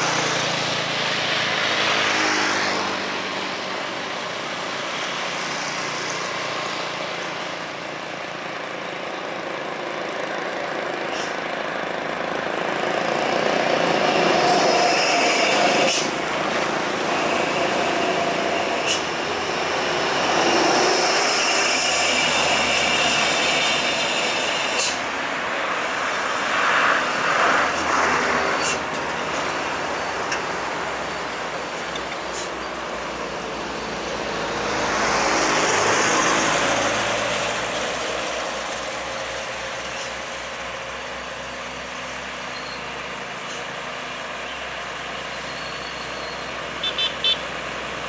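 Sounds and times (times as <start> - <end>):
diesel trucks passing: 0.0 - 48.0.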